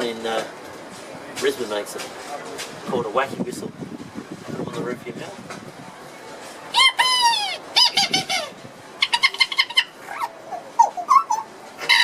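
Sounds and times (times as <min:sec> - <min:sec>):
reed whistle mimicking animal calls: 0:06.7 - 0:12.0.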